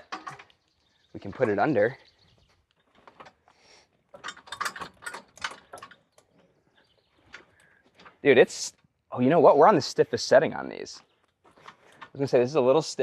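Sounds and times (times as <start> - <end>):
metal knocks and clanks: 0.0 - 0.6, 4.1 - 6.5.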